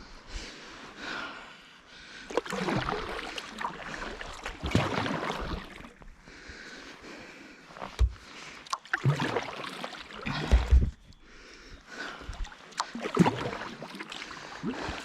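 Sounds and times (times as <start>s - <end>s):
paddle splashing in water: 2.3s - 6.0s, 7.8s - 11.0s, 12.2s - 15.0s.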